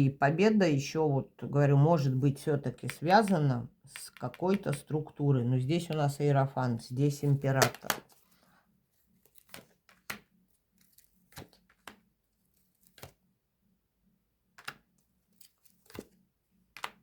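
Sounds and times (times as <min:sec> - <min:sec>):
cards snapping and tapping: 0:02.8 - 0:04.9, 0:07.6 - 0:08.2, 0:09.3 - 0:12.1, 0:12.8 - 0:13.2, 0:14.6 - 0:17.0.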